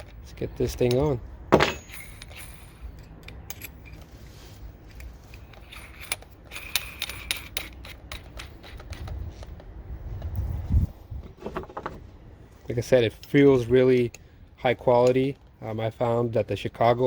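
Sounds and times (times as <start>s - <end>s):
thump: 1.5s - 1.9s.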